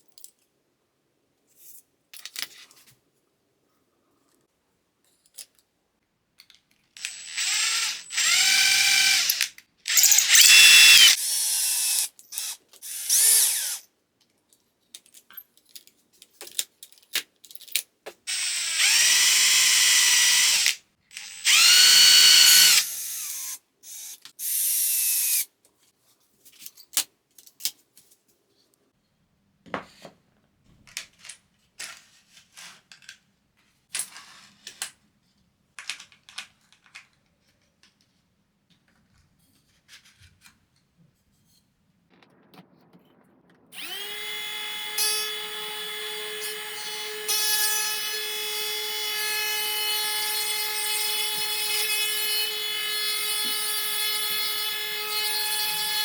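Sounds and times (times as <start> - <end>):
faint clicks and handling noises: 3.7 - 7.0, 14.2 - 18.2, 29.8 - 41.2
power tool motor whining: 7.0 - 13.8, 18.3 - 25.4, 43.8 - 56.0.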